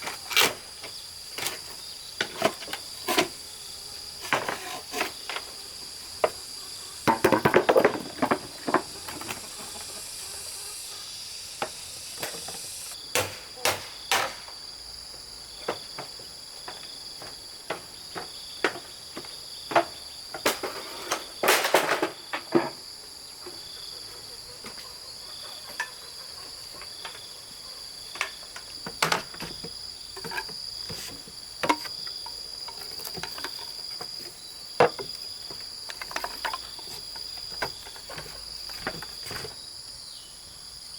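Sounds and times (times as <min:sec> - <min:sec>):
bamboo clattering: 0:00.0 - 0:03.6, 0:04.2 - 0:06.4, 0:07.0 - 0:10.1, 0:11.6 - 0:14.6, 0:15.6 - 0:23.8, 0:28.0 - 0:39.6
crickets chirring: 0:00.0 - 0:40.9
bamboo knocking: 0:11.6 - 0:14.5, 0:28.2 - 0:39.4.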